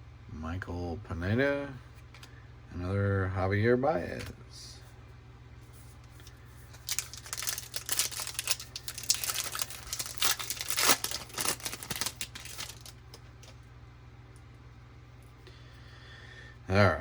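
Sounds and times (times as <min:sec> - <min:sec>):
wrapper tearing and crinkling: 0:06.2 - 0:13.6.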